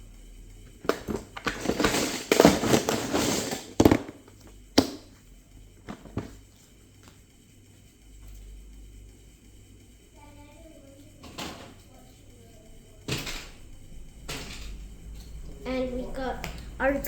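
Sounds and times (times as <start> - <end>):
plastic bricks clattering: 0.9 - 4.2.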